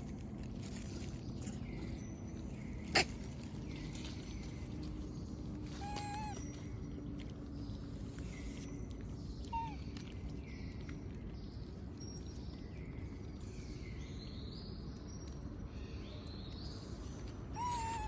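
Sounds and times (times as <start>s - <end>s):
monkey cry: 2.8s - 3.3s, 5.7s - 6.5s, 9.5s - 9.8s, 17.5s - 18.0s.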